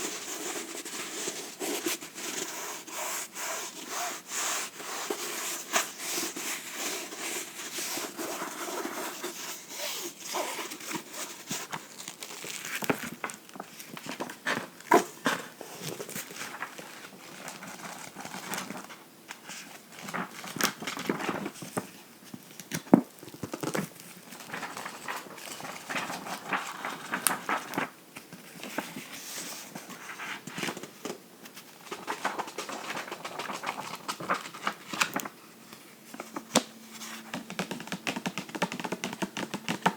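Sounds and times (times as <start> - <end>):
fingernails tapping on book: 37.3 - 39.9.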